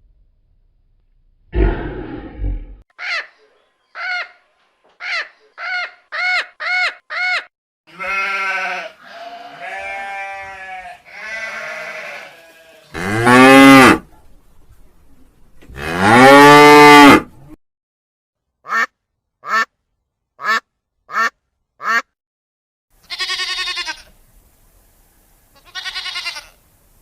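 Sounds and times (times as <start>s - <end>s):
sheep bleating: 7.9s - 13.5s, 23.0s - 24.1s, 25.6s - 26.6s
cow mooing: 8.0s - 14.0s, 15.8s - 17.3s.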